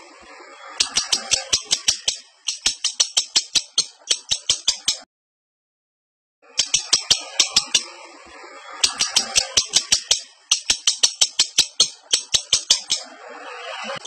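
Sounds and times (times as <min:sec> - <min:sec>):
soft low bird chatter: 0:00.0 - 0:05.1, 0:06.4 - 0:14.0
lovebird chirping rapidly: 0:00.7 - 0:05.1, 0:06.5 - 0:07.9, 0:08.7 - 0:14.0.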